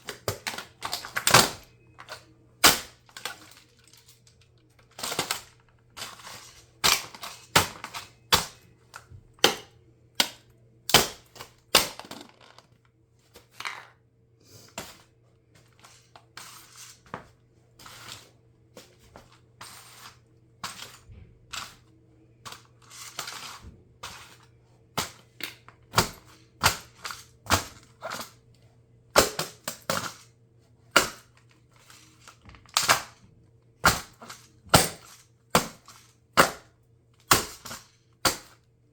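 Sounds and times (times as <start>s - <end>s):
plastic cracking and snapping: 0.0s - 12.9s
faint steady hum: 0.0s - 38.9s.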